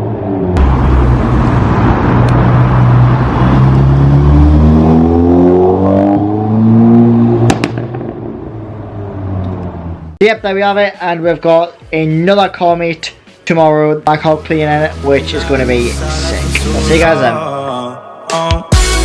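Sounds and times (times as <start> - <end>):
car engine accelerating: 0.0 - 10.2, 14.3 - 17.2
sharp cracks: 7.4 - 8.3.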